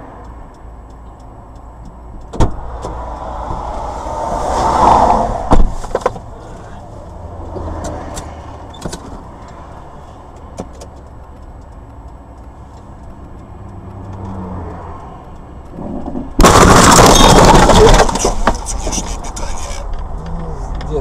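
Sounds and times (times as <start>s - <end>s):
car engine and road rumble: 0.0s - 21.0s
loud car crash: 16.4s - 19.7s.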